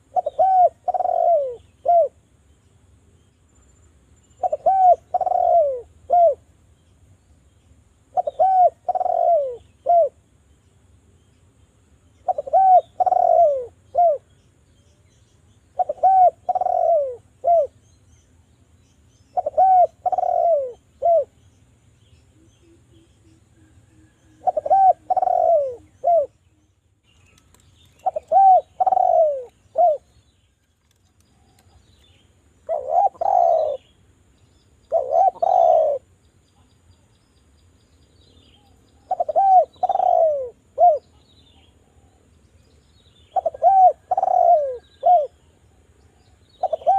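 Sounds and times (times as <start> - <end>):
dove cooing: 0.0 - 2.2, 4.4 - 6.5, 8.1 - 10.2, 12.2 - 14.3, 15.7 - 17.8, 19.3 - 21.4, 23.6 - 26.4, 28.0 - 30.1, 32.6 - 34.0, 34.9 - 36.1, 38.6 - 41.2, 43.3 - 45.4, 46.6 - 46.9.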